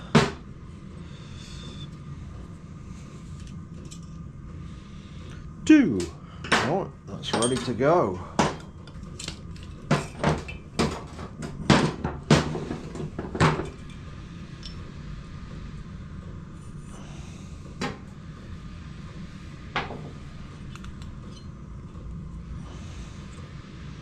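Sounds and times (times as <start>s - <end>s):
metal parts clinking on workbench: 7.3s - 7.8s.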